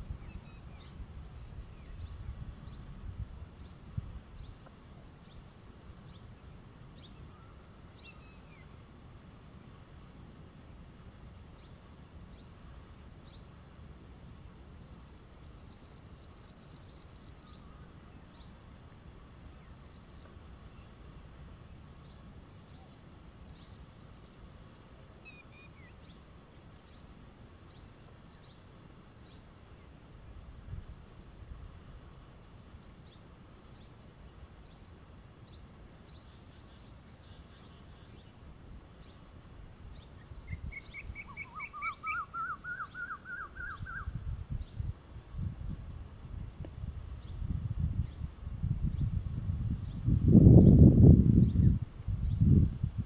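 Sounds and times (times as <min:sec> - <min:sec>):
steady high hiss: 0:00.0 - 0:53.0
bird chirp: 0:40.5 - 0:44.1.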